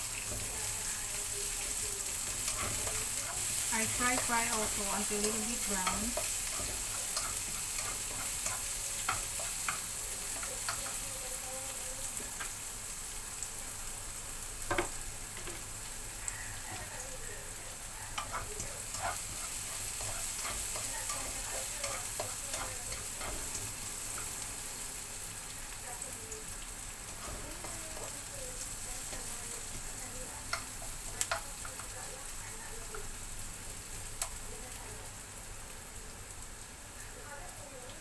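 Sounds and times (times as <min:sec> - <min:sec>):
utensil stirring and scraping: 0:00.0 - 0:11.4, 0:16.2 - 0:24.7
garlic and onion sizzling in oil: 0:00.0 - 0:38.0.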